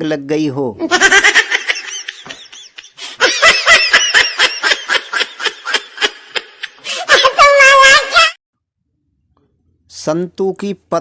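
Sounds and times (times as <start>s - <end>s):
high-pitched laughter: 0.8s - 8.4s.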